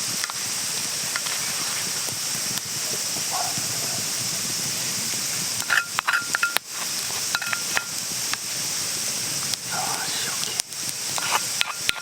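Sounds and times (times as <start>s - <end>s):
steady high hiss: 0.0s - 12.0s
short ringing clinks: 5.6s - 6.6s, 7.3s - 8.0s.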